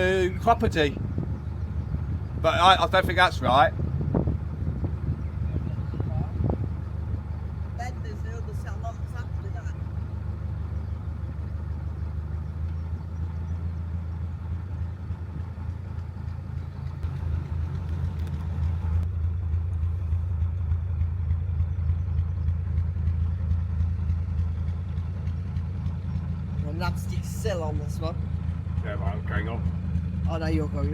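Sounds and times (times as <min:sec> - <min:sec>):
boat engine humming: 0:00.0 - 0:30.9.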